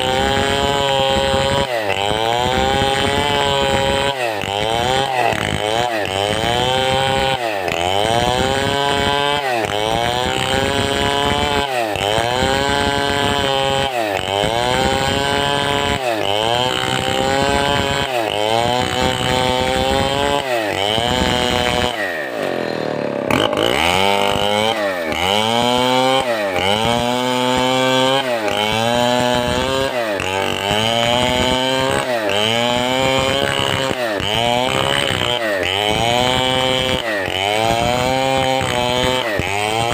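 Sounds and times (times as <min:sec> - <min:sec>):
chainsaw cutting timber: 0:00.0 - 0:39.9.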